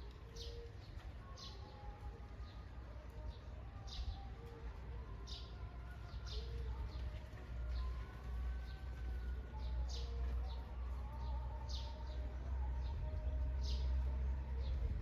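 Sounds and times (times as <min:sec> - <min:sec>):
birds chirping: 0:00.0 - 0:15.0
steady low rumble: 0:01.8 - 0:15.0.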